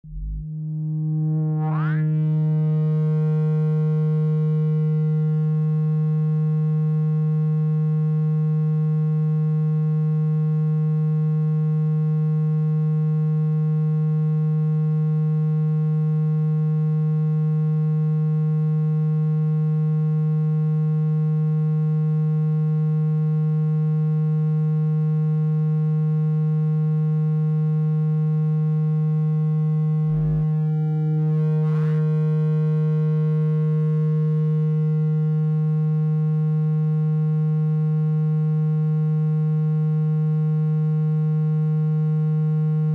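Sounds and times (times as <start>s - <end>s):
low buzzy electronic tone: 0.0s - 11.4s, 27.2s - 42.9s.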